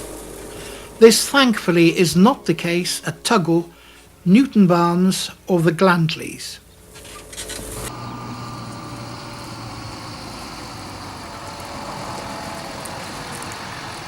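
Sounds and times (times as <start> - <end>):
tractor engine running: 0.0 - 4.8, 6.7 - 14.0.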